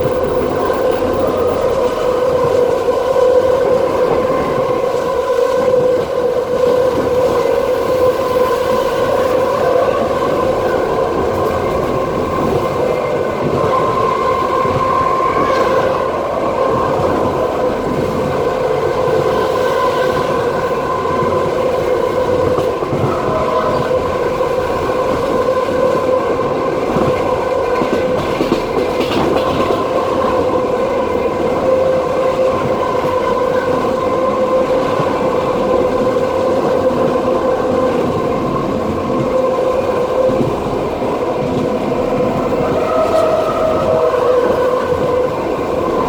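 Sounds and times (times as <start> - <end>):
high singing rail hum: 0.0 - 3.3
train wheels rumbling on rails: 0.0 - 46.0.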